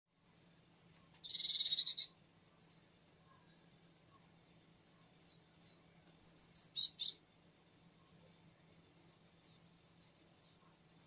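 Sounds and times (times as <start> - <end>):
harsh rattling bird call: 1.2 - 2.8, 4.1 - 7.2.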